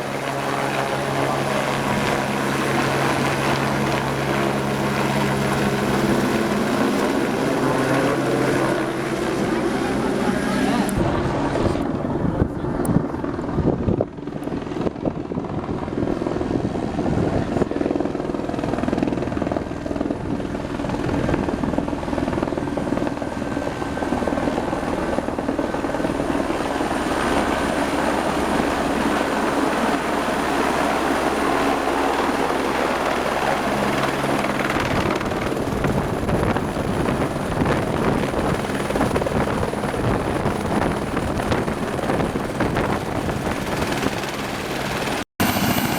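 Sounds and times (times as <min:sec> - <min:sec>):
helicopter rotor noise: 0:00.0 - 0:45.9
high turbine whine: 0:41.8 - 0:45.9.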